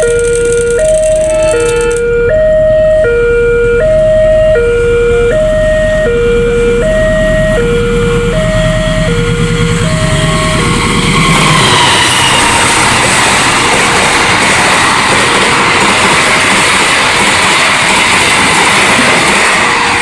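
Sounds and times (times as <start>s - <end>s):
low drone: 0.0s - 15.8s
train wheels rumbling on rails: 0.0s - 20.0s
two-pitch crossing warning siren: 0.0s - 20.0s.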